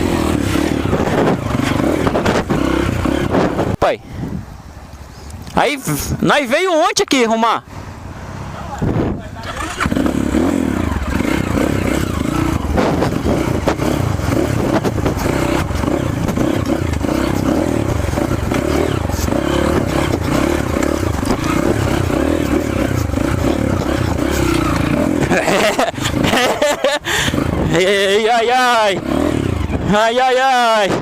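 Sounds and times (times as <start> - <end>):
motorcycle engine running: 0.0 - 3.8, 8.0 - 30.9
rattling and clatter: 11.0 - 26.6.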